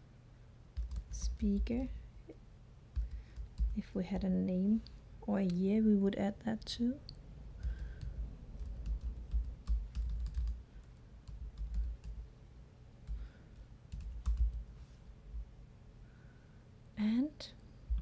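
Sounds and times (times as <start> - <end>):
computer keyboard typing: 0.8 - 2.0, 2.9 - 3.8, 7.6 - 12.2, 13.1 - 14.7.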